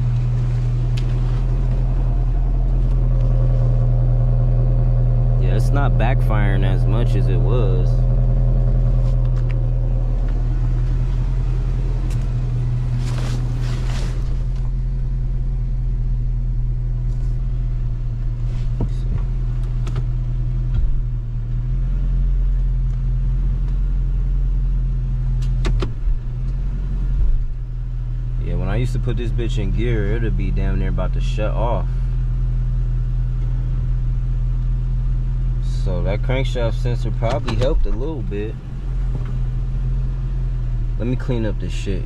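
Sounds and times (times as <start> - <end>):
misfiring car engine idling: 0.0 - 25.4.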